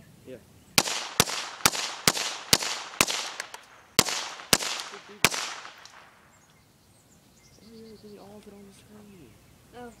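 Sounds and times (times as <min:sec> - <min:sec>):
rifle shots echoing: 0:00.8 - 0:06.4.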